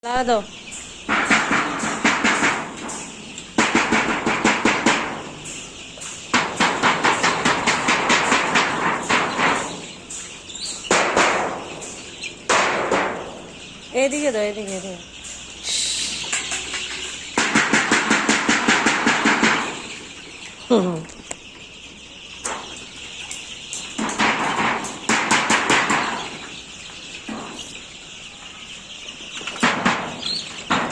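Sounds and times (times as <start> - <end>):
chicks cheeping: 0.0 - 30.9
sharp knocks: 1.0 - 13.5, 16.3 - 20.1, 23.9 - 26.6, 29.4 - 30.9.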